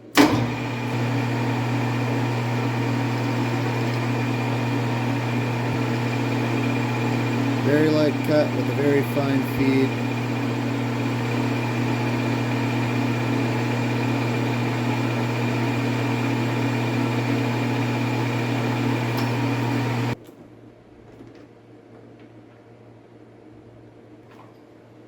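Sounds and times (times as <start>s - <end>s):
metal lathe running: 0.1s - 20.2s.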